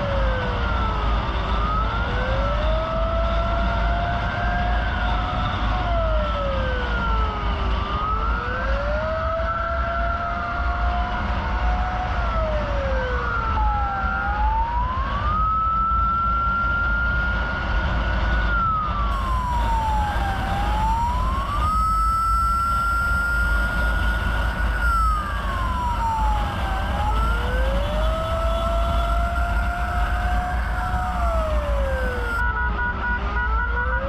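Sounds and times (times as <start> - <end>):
emergency vehicle siren wailing: 0.0 - 34.0
second siren: 0.0 - 34.0
steady low rumble: 19.1 - 32.4.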